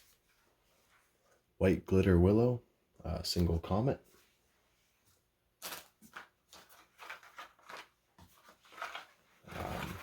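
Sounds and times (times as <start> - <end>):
packaging rustling: 5.6 - 10.0.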